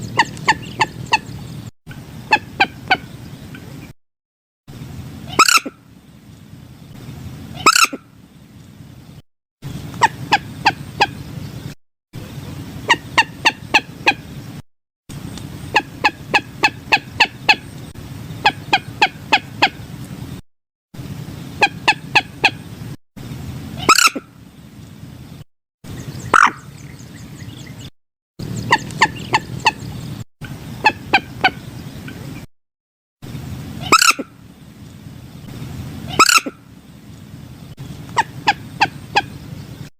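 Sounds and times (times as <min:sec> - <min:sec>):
moorhen calling: 0:00.0 - 0:03.9, 0:05.2 - 0:05.9, 0:07.5 - 0:08.2, 0:09.7 - 0:11.6, 0:12.8 - 0:14.4, 0:15.3 - 0:19.8, 0:21.6 - 0:22.7, 0:23.8 - 0:24.4, 0:25.9 - 0:32.5, 0:33.8 - 0:34.8, 0:36.0 - 0:37.2, 0:37.8 - 0:39.9.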